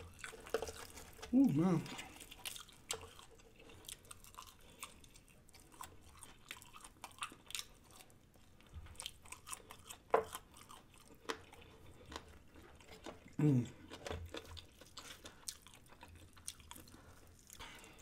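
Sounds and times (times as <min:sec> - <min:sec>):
person chewing crispy food: 0:00.0 - 0:18.0.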